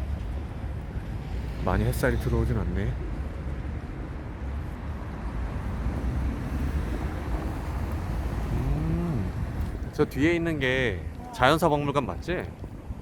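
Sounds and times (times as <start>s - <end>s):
traffic rumble: 0.0s - 13.0s
wind on microphone: 2.9s - 13.0s.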